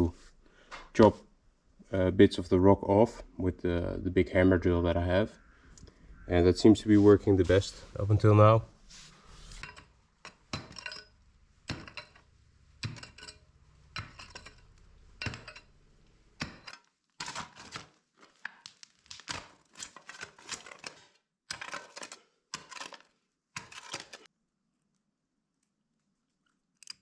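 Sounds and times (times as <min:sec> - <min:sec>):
clinks and knocks of hard objects: 0:09.5 - 0:24.3.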